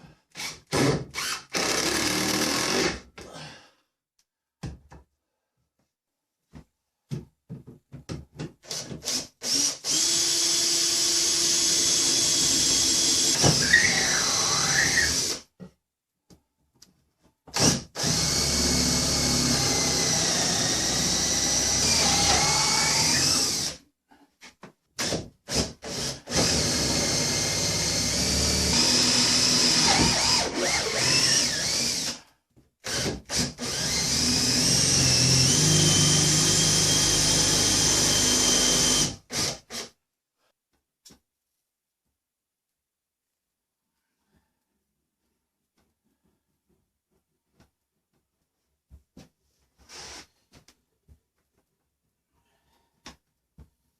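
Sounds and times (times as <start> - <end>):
power drill motor whine: 27.9 - 32.1.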